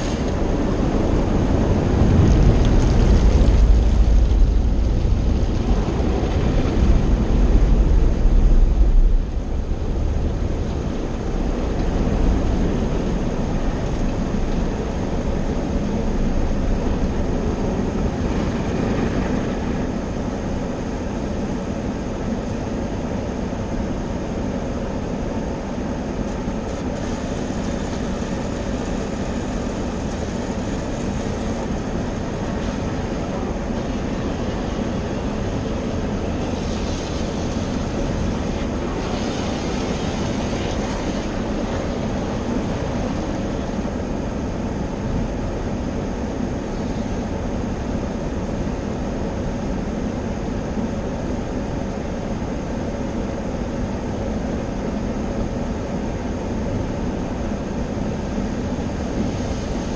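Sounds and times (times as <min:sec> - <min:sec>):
car wash machinery rumbling: 0:00.0 - 0:59.9.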